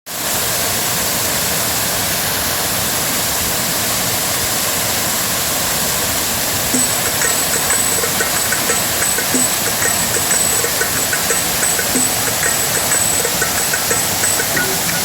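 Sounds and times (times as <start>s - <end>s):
faint high-pitched tone: 6.8s - 15.0s
light ticks: 6.8s - 15.0s.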